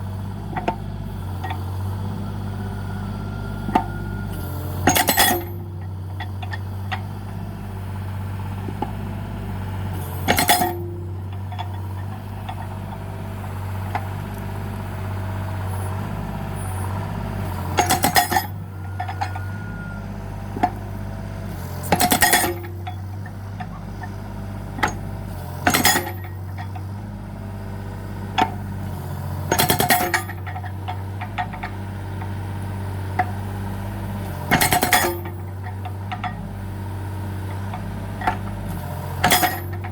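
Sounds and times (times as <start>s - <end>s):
excavator engine running: 0.0s - 39.9s
hydraulic breaker hammering: 4.7s - 7.5s, 10.1s - 14.8s, 16.6s - 20.9s, 21.5s - 27.0s, 28.3s - 32.3s, 33.1s - 39.9s.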